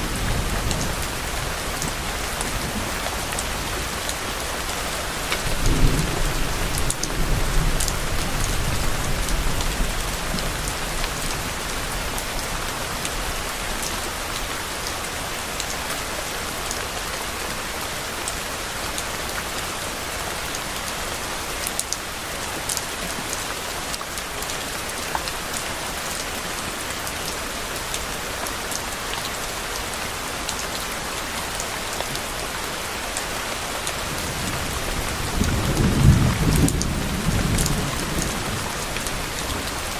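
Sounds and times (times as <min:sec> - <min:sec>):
rain pattering: 0:00.0 - 0:39.9
low thunder rumble: 0:05.4 - 0:12.2, 0:34.1 - 0:39.9.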